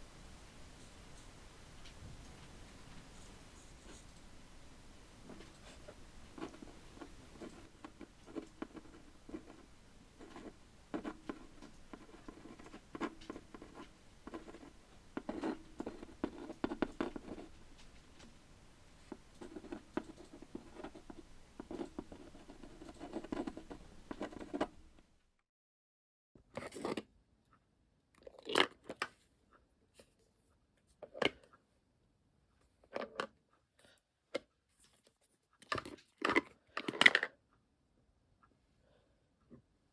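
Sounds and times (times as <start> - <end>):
room hiss: 0.0 - 8.3.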